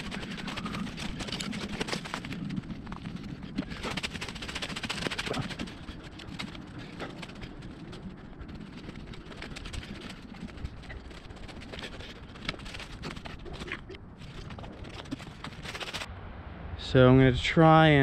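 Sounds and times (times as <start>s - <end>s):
footsteps on forest floor: 10.8s - 16.1s.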